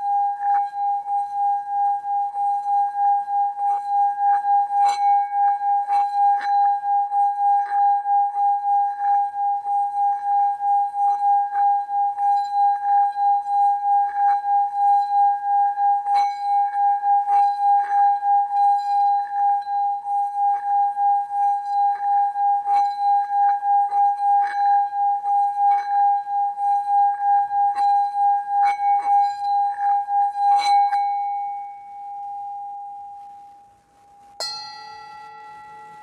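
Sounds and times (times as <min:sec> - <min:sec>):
singing bowl ringing: 0:00.0 - 0:33.7, 0:34.3 - 0:36.0
singing bowl struck: 0:34.4 - 0:36.0.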